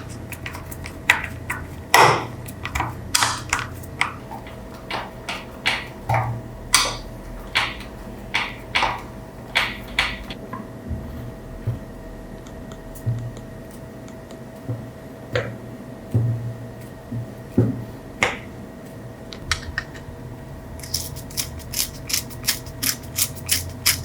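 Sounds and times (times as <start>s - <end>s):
hard parts clicking and tapping: 0.0s - 10.4s
faint steady hum: 0.0s - 24.0s.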